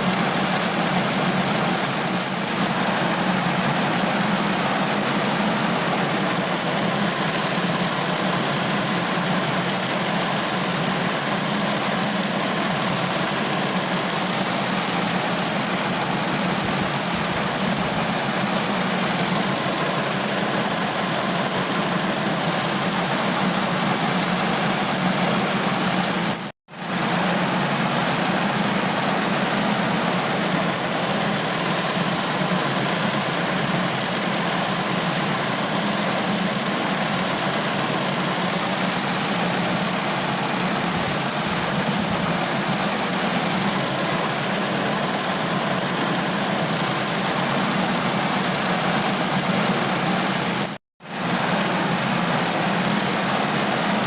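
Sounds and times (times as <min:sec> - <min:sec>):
rain drumming on a car roof: 0:00.0 - 0:53.9.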